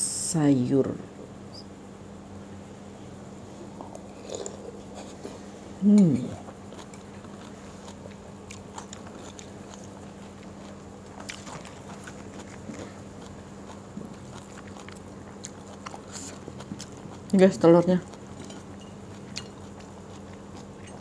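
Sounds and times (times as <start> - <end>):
steady low hum: 0.0 - 21.0
person chewing food: 3.7 - 17.4, 18.0 - 21.0.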